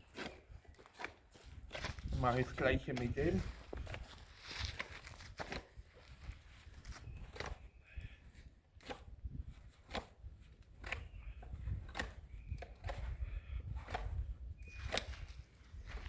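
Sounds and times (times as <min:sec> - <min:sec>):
knife shaving bark off stick: 0:00.0 - 0:07.6.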